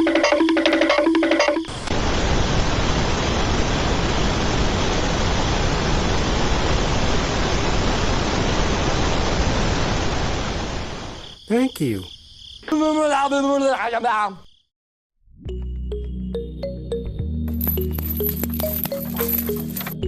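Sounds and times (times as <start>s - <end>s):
music: 0.0s - 1.7s, 15.4s - 20.0s
steady rushing hiss: 1.7s - 11.3s.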